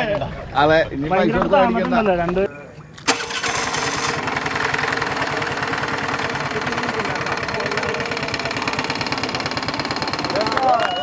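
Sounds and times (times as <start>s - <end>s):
boat engine running: 2.5s - 11.0s.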